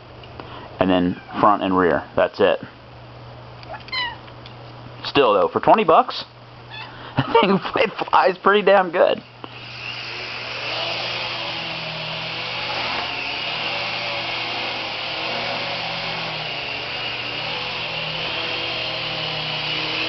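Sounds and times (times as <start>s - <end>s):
small helicopter motors whining: 9.5s - 20.0s.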